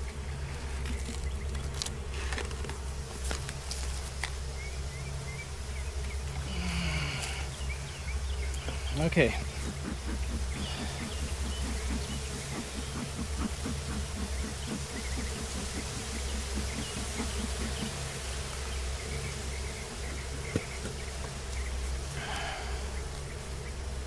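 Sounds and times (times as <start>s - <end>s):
honeybees buzzing: 0.0s - 24.0s
fast regular pulsing: 8.3s - 21.2s.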